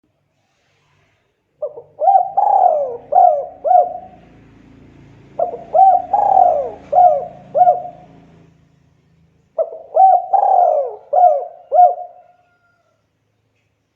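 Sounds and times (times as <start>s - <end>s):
dove cooing: 1.6s - 8.6s, 9.6s - 12.8s.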